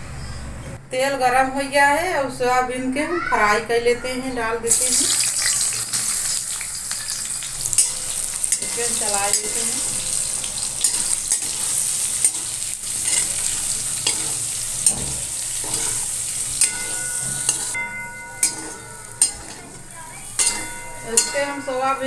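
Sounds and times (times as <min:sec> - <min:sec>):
soya chunks sizzling in oil: 0:04.7 - 0:22.0
spatula scraping and clinking pan: 0:05.2 - 0:22.0.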